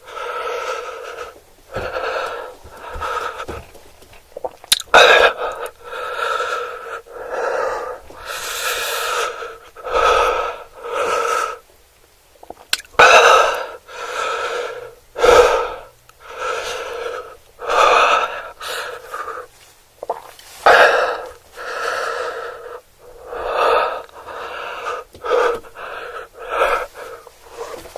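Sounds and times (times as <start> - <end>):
person wheezing and gasping: 20.6 - 27.9.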